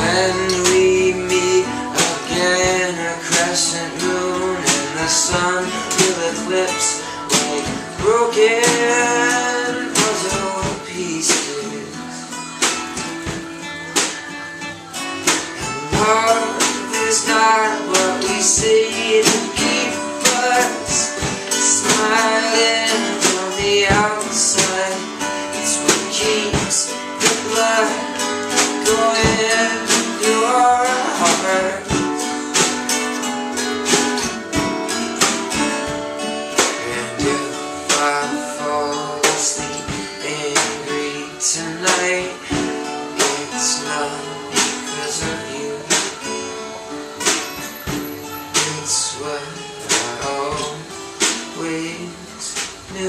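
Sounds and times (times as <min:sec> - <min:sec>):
live band playing: 0:00.0 - 0:53.0
strummed guitar: 0:00.0 - 0:53.0.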